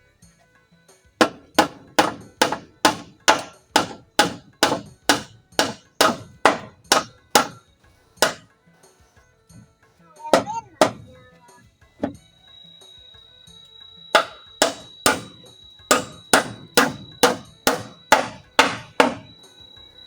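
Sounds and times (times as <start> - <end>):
hammer striking: 1.2 - 7.6, 8.2 - 8.5, 9.5 - 11.4, 12.0 - 12.2, 14.1 - 19.5.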